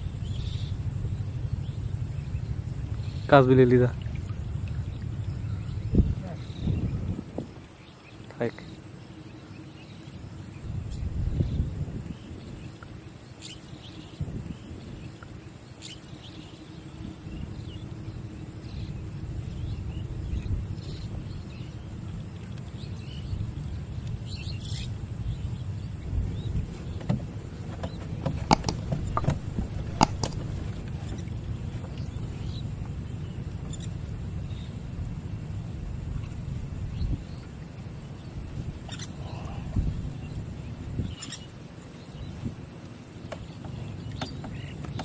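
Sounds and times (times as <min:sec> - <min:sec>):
low rumble: 0:00.0 - 0:07.7, 0:16.4 - 0:41.2
sharp clicks: 0:28.3 - 0:30.6
faint bird chirps: 0:38.9 - 0:40.4, 0:41.0 - 0:41.5.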